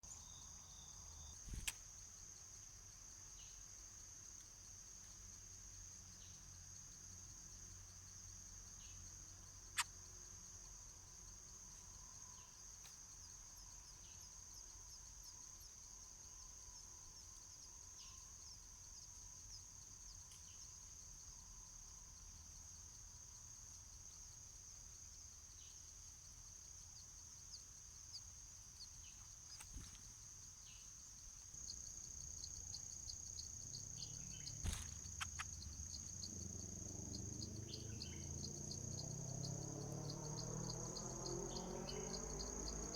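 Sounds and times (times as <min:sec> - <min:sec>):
high-pitched insect drone: 0:32.1 - 0:42.9
sharp clicks: 0:34.5 - 0:35.7.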